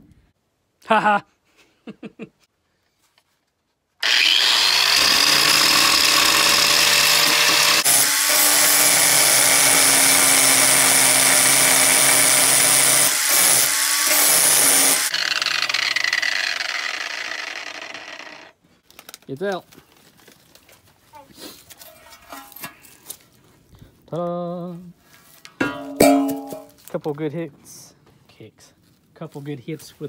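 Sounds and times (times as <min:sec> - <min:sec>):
electric grinder grinding metal: 0:04.0 - 0:18.6.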